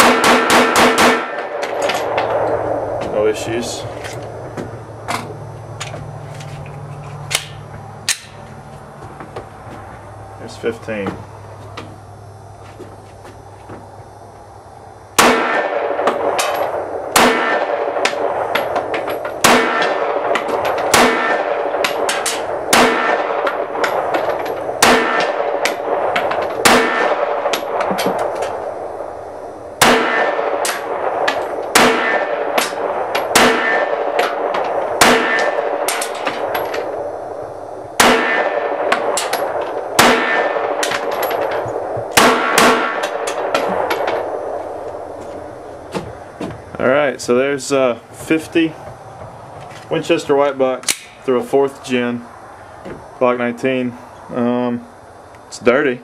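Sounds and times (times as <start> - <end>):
pistol shots with ringing tail: 0.0 - 3.0, 15.2 - 29.2, 29.8 - 37.2, 37.9 - 45.6.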